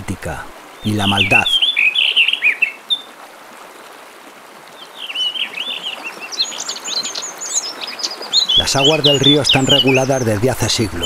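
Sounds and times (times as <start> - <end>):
steady background hiss: 0.0 - 11.0
small birds singing: 0.6 - 3.2, 4.7 - 11.0.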